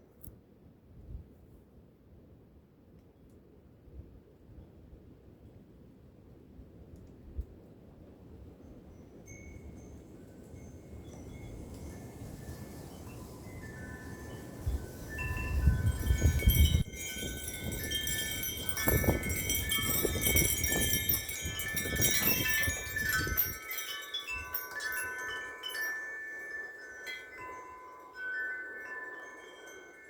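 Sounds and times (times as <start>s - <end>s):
wind chimes ringing: 9.1s - 30.0s
wind buffeting microphone: 9.5s - 25.8s.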